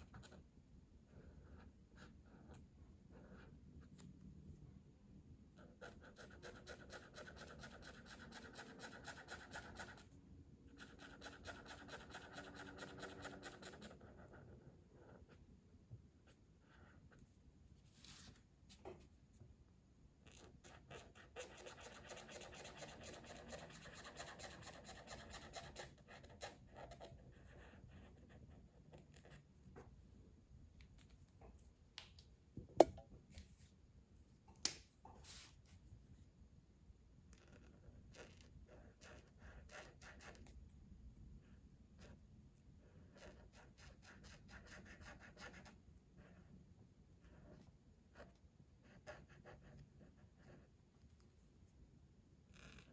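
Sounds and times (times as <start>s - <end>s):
colouring tool scratching on paper: 5.8s - 10.1s, 10.8s - 15.2s, 20.2s - 29.3s.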